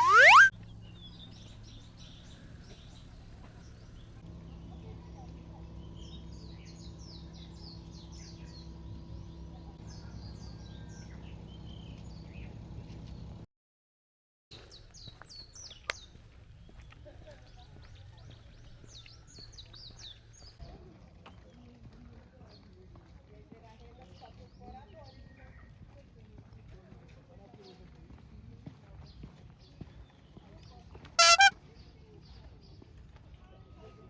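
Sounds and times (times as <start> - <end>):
loud rising whistle: 0.0 - 0.5
small birds chirping: 0.0 - 4.2, 14.6 - 20.6, 31.2 - 31.5.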